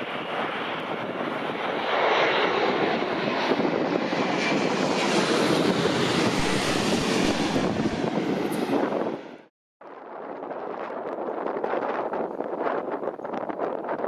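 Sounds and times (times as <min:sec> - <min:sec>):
jet engine rushing: 0:00.0 - 0:09.5.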